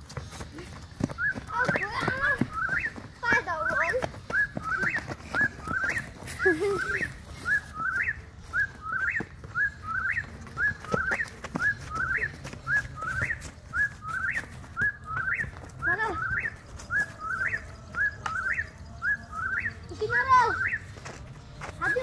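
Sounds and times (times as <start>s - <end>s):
bird calling: 0.7s - 21.2s.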